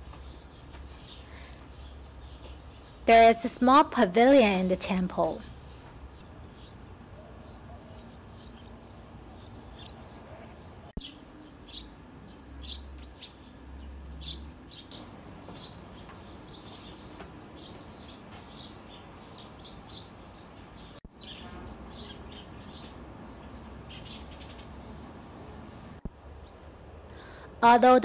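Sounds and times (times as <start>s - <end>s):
small birds chirping: 0.0s - 3.8s, 4.4s - 28.0s.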